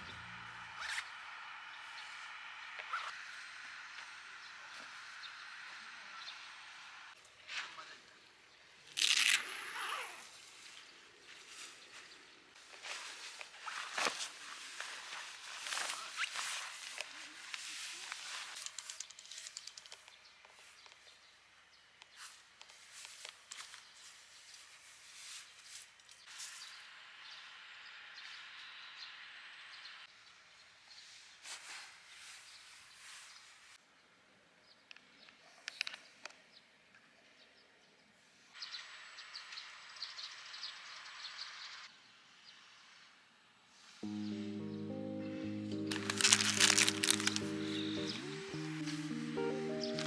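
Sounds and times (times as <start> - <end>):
light clicks and rustles: 12.6 - 21.2
birds chirping: 44.0 - 50.0.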